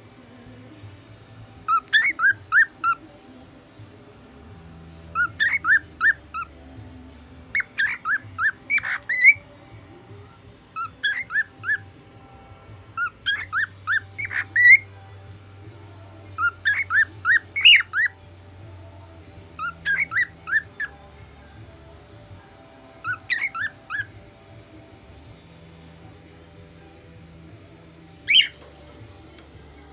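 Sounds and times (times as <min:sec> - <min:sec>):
cockatiel whistling: 0:01.7 - 0:03.0, 0:05.1 - 0:06.5, 0:07.6 - 0:09.4, 0:10.8 - 0:11.8, 0:13.0 - 0:14.9, 0:16.4 - 0:18.2, 0:19.6 - 0:21.0, 0:23.0 - 0:24.2, 0:28.3 - 0:28.6.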